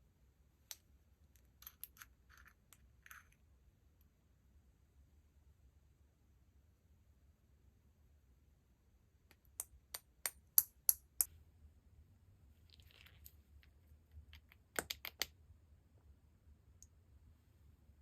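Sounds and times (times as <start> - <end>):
small hard objects clicking: 12.7 - 15.3.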